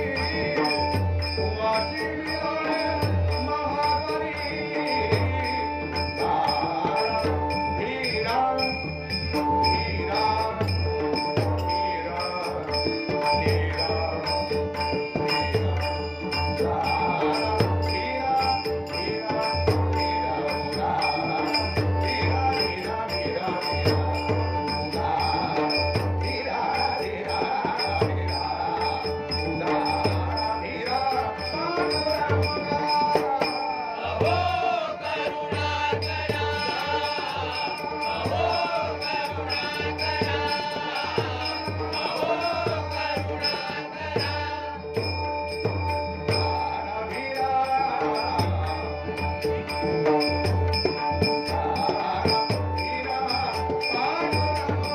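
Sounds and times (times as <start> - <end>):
hand drum beating: 0.0 - 33.6
small cymbals clinking: 0.0 - 33.8
person singing devotional song: 0.0 - 54.9.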